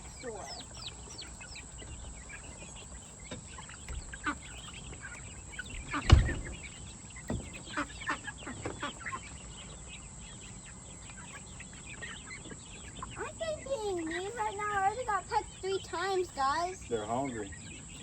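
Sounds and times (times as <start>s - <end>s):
chickens calling: 0.0s - 18.0s
loud thump: 5.8s - 6.6s.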